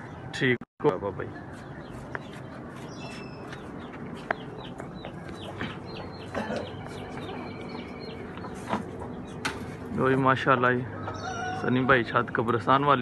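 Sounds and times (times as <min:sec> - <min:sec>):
steady background noise: 0:00.0 - 0:13.0
high falling bird chirps: 0:01.4 - 0:09.8.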